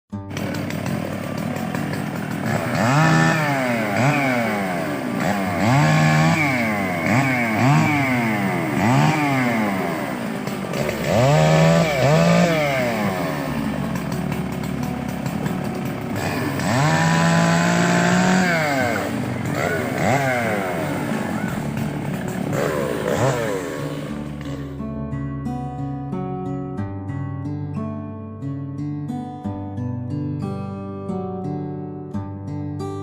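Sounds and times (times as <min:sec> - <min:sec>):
chainsaw idling and revving: 0:00.2 - 0:25.0.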